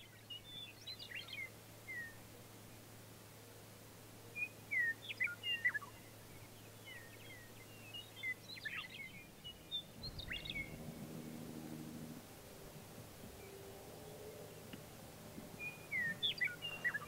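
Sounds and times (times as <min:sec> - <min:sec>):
songbirds singing: 0:00.0 - 0:17.0
low droning hum: 0:09.0 - 0:17.0.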